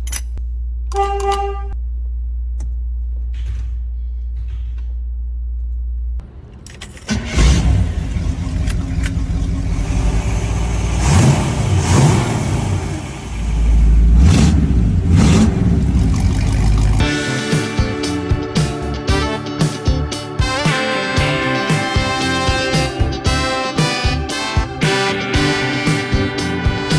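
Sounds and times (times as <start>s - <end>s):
car engine revving: 7.1s - 26.9s
music: 17.0s - 26.9s.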